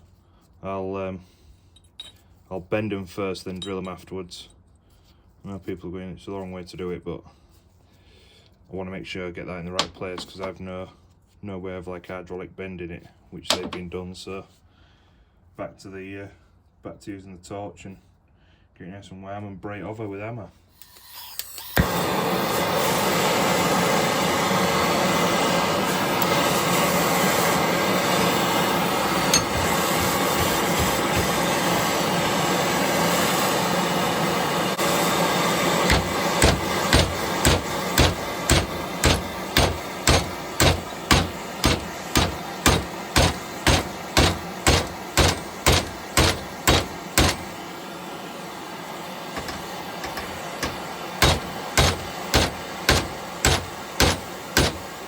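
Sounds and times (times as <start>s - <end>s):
gas torch hissing: 20.7s - 55.0s
hammer striking hot steel: 28.3s - 31.9s, 35.7s - 47.6s, 49.4s - 55.0s.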